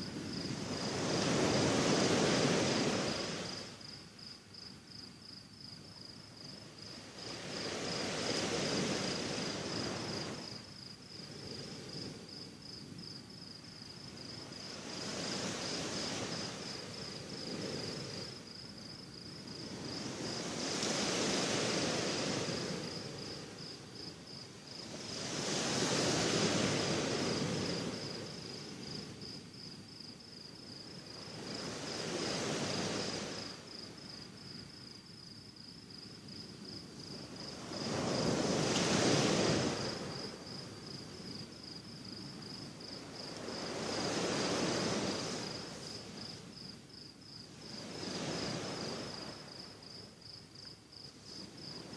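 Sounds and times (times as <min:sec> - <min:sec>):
sea waves breaking on shore: 0:00.0 - 0:03.9, 0:06.8 - 0:12.3, 0:14.1 - 0:18.5, 0:19.2 - 0:29.6, 0:30.8 - 0:34.0, 0:37.1 - 0:41.6, 0:42.2 - 0:46.7, 0:47.5 - 0:50.2.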